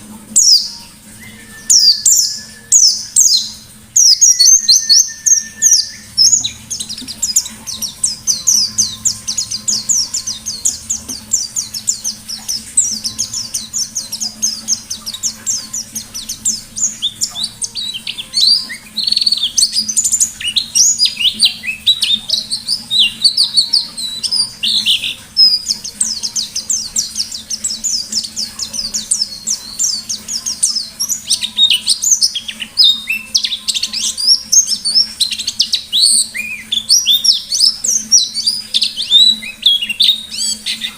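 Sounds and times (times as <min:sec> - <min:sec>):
bird twittering chirps: 0:00.0 - 0:40.9.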